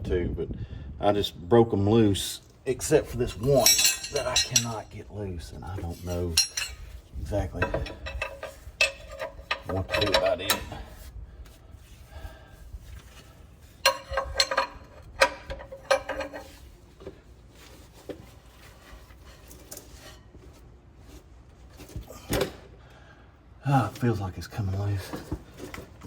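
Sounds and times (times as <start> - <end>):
steel hand tools clinking: 3.2 - 5.0, 5.7 - 10.8, 13.8 - 16.5.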